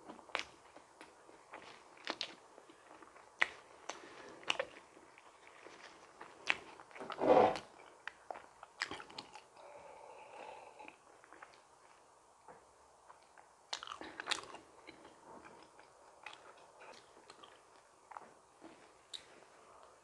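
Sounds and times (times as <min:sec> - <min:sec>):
chewing and biting donuts: 0:00.0 - 0:07.0, 0:07.8 - 0:09.7, 0:13.1 - 0:19.4.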